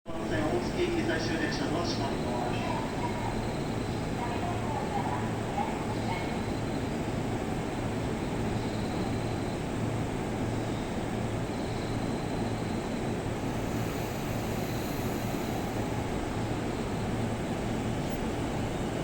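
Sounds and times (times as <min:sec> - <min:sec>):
electric train humming: 0:00.2 - 0:19.0.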